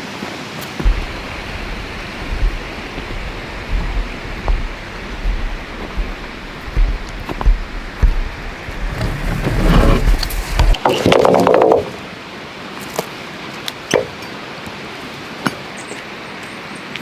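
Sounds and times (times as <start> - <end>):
heavy rain falling: 0.8 - 10.8
low thumps: 0.8 - 10.8.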